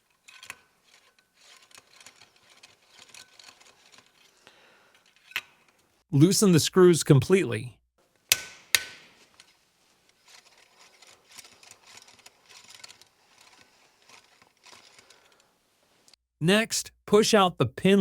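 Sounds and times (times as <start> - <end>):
tool ticks and scrapes on screws: 0.1 - 4.4, 8.3 - 9.5, 10.1 - 15.5
sharp metal click: 8.3 - 9.2.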